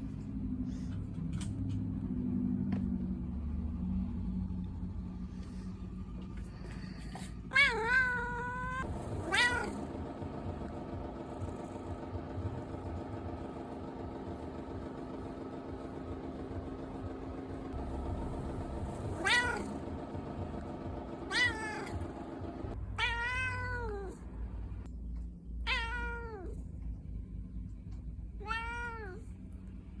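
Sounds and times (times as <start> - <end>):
cat meowing: 7.5 - 9.8, 19.1 - 19.8, 21.3 - 22.0, 23.0 - 24.2, 25.7 - 26.6, 28.4 - 29.3.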